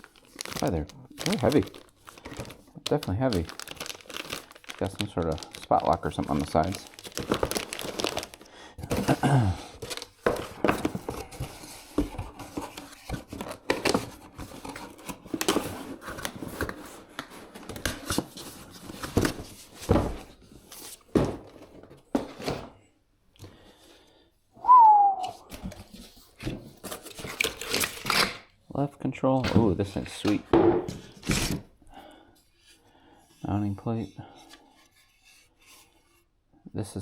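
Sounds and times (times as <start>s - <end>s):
packaging rustling and crinkling: 0.0s - 22.3s, 25.8s - 28.4s
falling whistle-like squeak: 24.6s - 25.4s.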